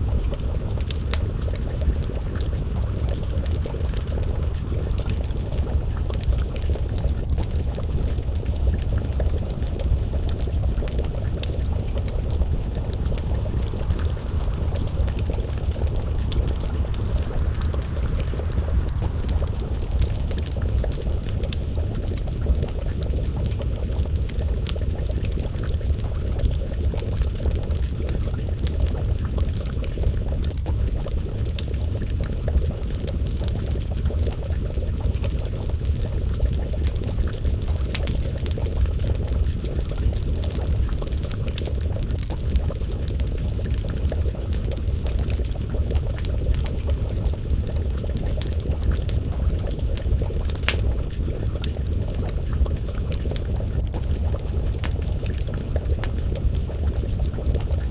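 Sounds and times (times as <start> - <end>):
low rumble: 0.0 - 57.9
stew bubbling in a pot: 0.0 - 57.9
wood fire crackling and popping: 0.0 - 57.9.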